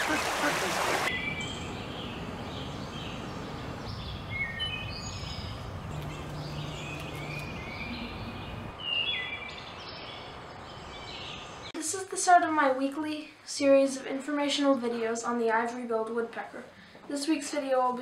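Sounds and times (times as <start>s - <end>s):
outdoor background noise: 0.0s - 18.0s
birds chirping and whistling: 1.1s - 11.7s.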